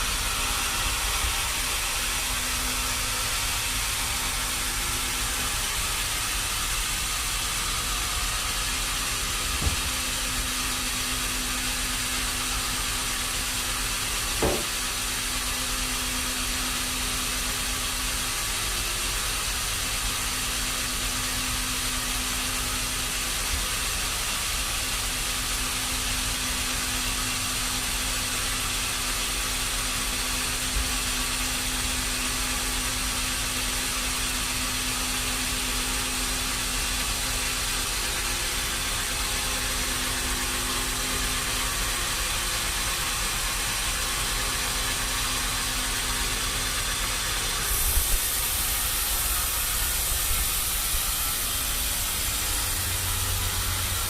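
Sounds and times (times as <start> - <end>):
sawmill machinery running: 0.0 - 54.0
short knocks: 9.6 - 10.1, 14.4 - 14.8.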